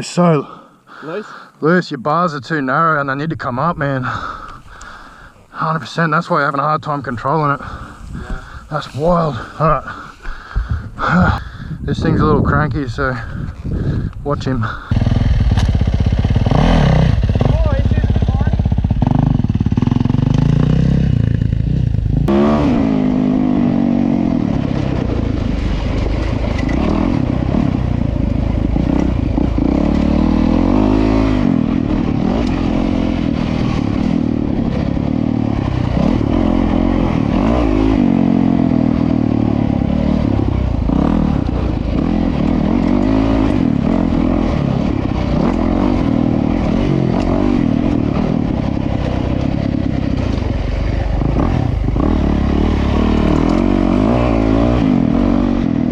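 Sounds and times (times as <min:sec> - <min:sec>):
dirt bike engine revving: 0:14.6 - 0:55.9.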